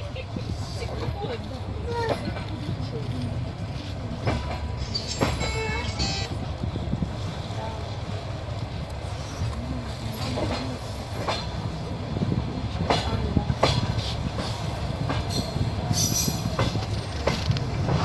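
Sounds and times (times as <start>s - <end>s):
train running gear rumble: 0.0s - 18.0s
wheels clicking over rail joints: 7.0s - 18.0s.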